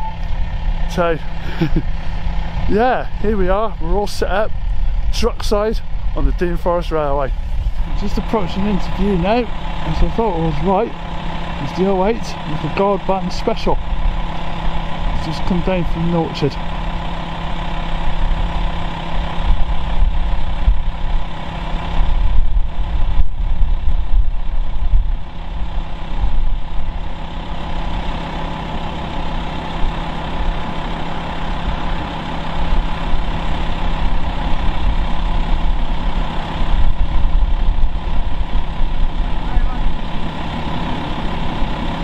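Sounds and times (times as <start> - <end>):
diesel locomotive engine running: 0.0 - 42.0.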